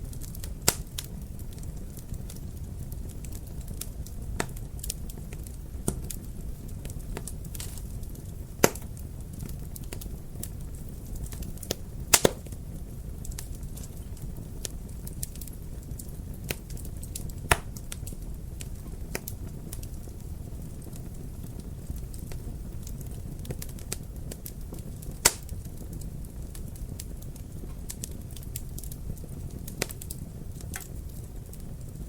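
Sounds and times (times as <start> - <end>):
low hiss of flame: 0.0 - 32.0
wood fire crackling: 0.0 - 32.0
loud snaps of burning wood: 0.1 - 32.0
small sharp pops: 8.6 - 8.9, 12.1 - 12.6, 17.5 - 17.8, 25.2 - 25.5.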